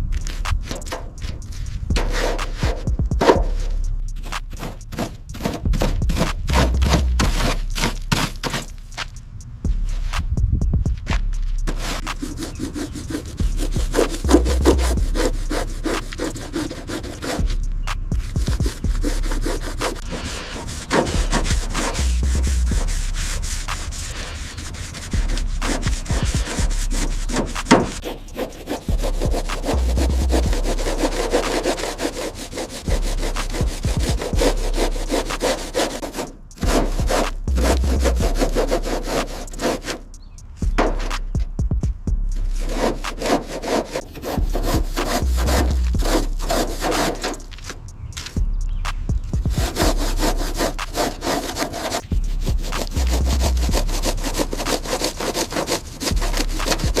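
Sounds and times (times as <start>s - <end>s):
rubbing and scraping strokes: 0.0s - 10.4s, 11.0s - 57.0s
low hum: 0.0s - 57.0s.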